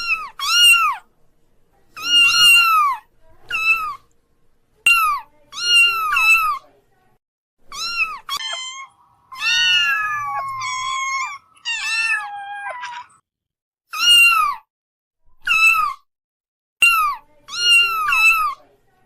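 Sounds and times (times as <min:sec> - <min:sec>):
kittens meowing: 0:00.0 - 0:01.0, 0:02.0 - 0:04.0, 0:07.7 - 0:13.2, 0:14.0 - 0:14.7.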